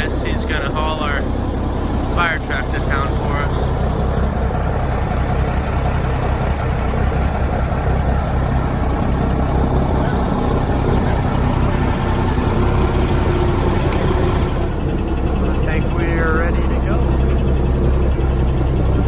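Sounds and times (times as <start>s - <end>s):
diesel truck engine droning: 0.0s - 19.0s.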